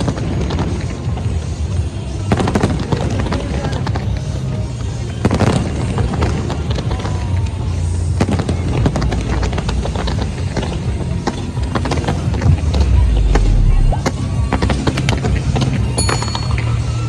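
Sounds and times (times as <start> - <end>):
fireworks bangs and crackles: 0.0 - 17.0
music playing: 0.0 - 17.0
deep rumble: 5.9 - 15.9.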